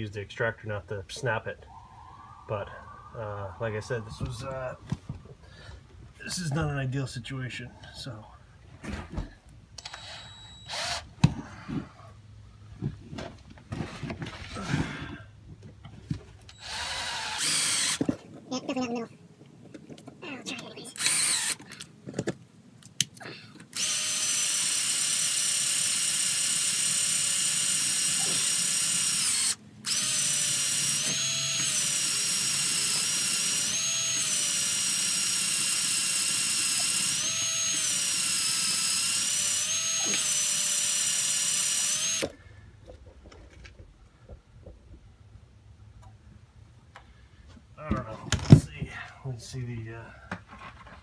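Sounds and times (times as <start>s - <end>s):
electric drill boring into metal: 9.8s - 11.1s, 16.5s - 18.1s, 21.0s - 21.7s, 23.7s - 42.3s.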